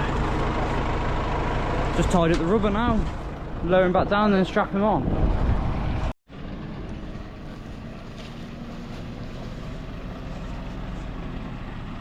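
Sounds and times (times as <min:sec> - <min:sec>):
diesel engine running: 0:00.0 - 0:12.0
wind on microphone: 0:02.8 - 0:06.1.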